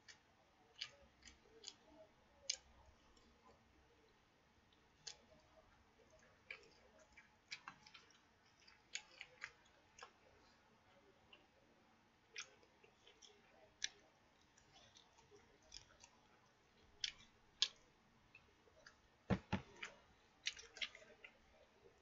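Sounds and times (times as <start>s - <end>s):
chewing and wet mouth clicks: 0.0s - 1.9s, 5.0s - 5.5s, 6.1s - 10.2s, 12.4s - 19.0s
dull knocks: 19.3s - 19.7s.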